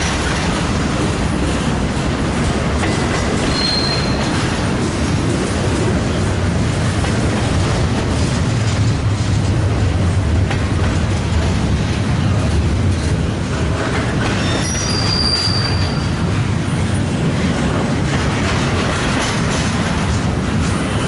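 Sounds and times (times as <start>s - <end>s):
train wheels rumbling on rail: 0.0s - 21.0s
high-pitched wheel squeal: 3.5s - 4.3s, 14.4s - 16.2s.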